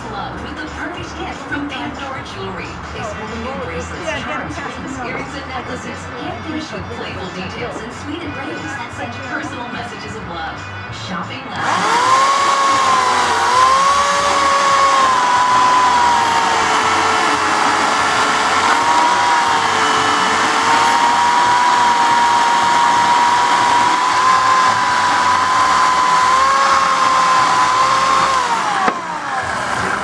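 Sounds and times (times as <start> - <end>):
electric chainsaw motor whine: 11.6 - 30.0.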